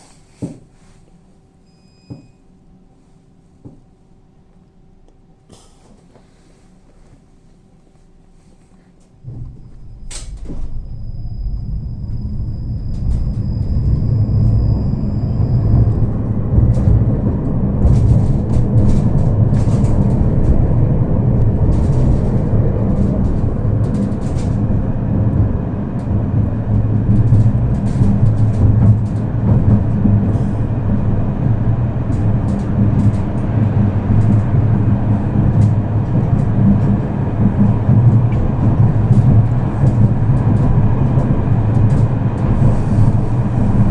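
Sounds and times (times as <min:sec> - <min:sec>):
thin high whine: 0:01.6 - 0:03.2, 0:09.4 - 0:16.1
tram rumbling on rails: 0:08.3 - 0:43.9.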